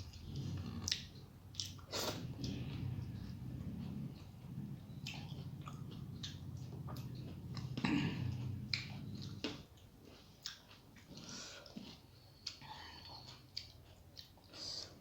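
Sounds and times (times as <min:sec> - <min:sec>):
chewing and eating mouth sounds: 0:00.0 - 0:15.0
low hum: 0:02.1 - 0:09.6.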